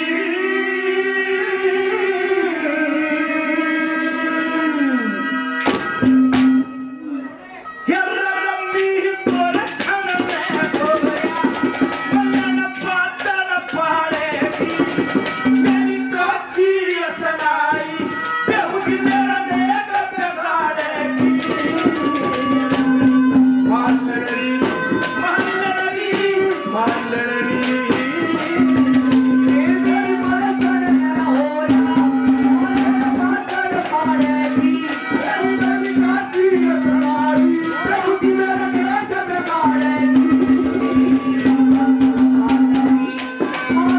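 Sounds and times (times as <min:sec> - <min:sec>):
person singing: 0:06.5 - 0:43.9
hand drum strokes: 0:09.3 - 0:43.9.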